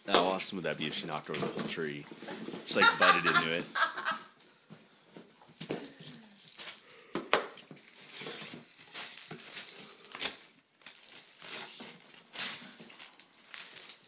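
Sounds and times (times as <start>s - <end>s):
paper and cardboard tearing: 8.0s - 14.0s.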